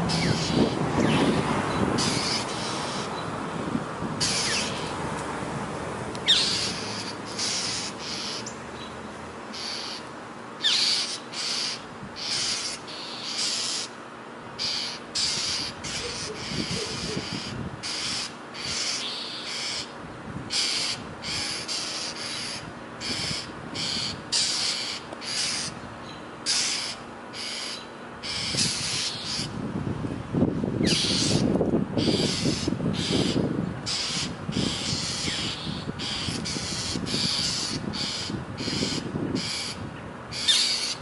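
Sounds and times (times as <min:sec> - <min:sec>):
harsh high-pitched bird calls: 0:00.0 - 0:03.3, 0:04.2 - 0:05.0, 0:06.2 - 0:14.0, 0:14.6 - 0:29.6, 0:30.8 - 0:41.0
thin rising bird chirps: 0:06.2 - 0:14.0.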